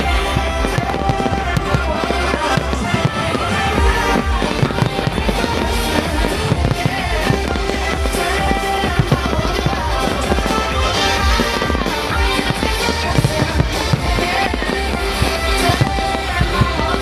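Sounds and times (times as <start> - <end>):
fireworks bangs and pops: 0.0 - 17.0
loud music: 0.0 - 17.0.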